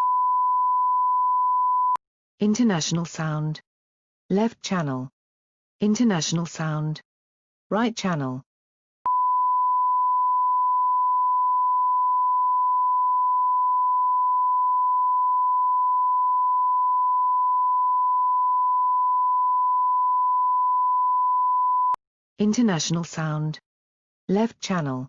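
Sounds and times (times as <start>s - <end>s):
sine wave test tone: 0.0s - 2.0s, 9.1s - 22.0s.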